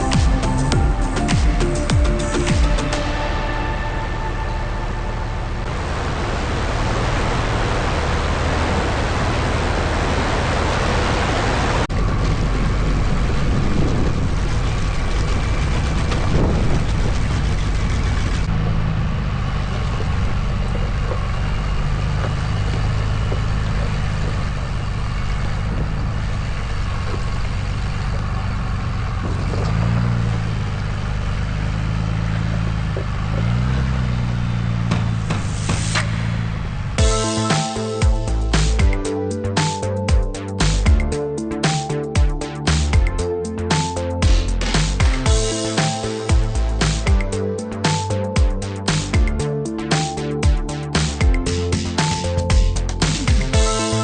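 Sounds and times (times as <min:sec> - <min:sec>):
truck engine revving: 0:00.0 - 0:54.0
loud rushing noise: 0:34.6 - 0:38.9.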